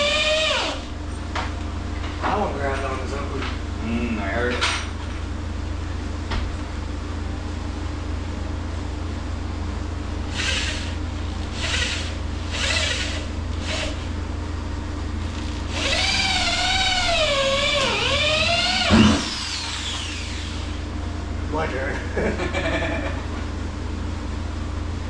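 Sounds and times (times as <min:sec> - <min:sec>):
steady low hum: 0:00.0 - 0:25.0
power drill driving screw into wood: 0:10.3 - 0:11.0, 0:11.6 - 0:14.0, 0:15.7 - 0:20.7.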